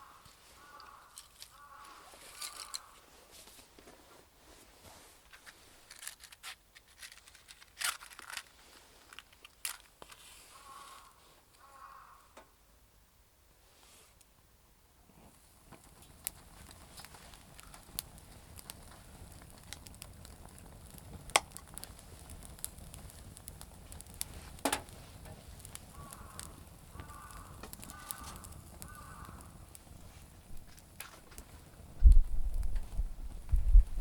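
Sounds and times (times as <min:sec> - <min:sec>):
low steady fire rumble: 0:15.0 - 0:34.0
campfire crackling and popping: 0:15.1 - 0:34.0.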